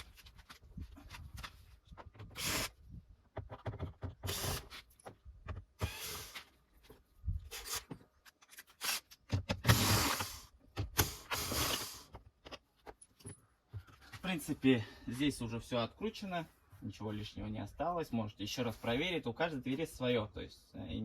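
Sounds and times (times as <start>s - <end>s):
power tool bursts: 2.4s - 2.8s, 4.2s - 4.7s, 5.8s - 6.4s, 9.6s - 12.0s.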